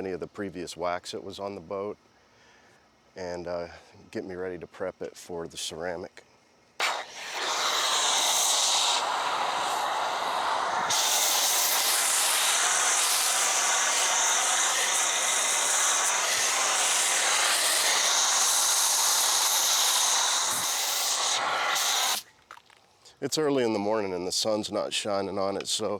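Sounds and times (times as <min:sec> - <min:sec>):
foam cannon spraying hiss: 0:06.8 - 0:22.3.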